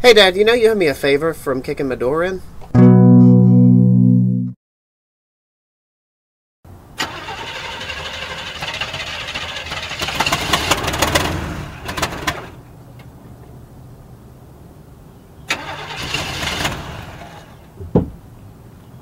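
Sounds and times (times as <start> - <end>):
car engine starting and running: 6.7 - 13.1, 15.5 - 18.4
sharp engine knocks: 17.8 - 18.2.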